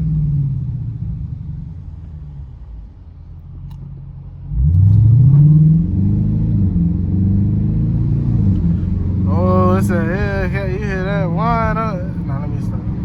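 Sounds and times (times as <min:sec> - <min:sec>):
car engine revving: 0:04.4 - 0:13.0.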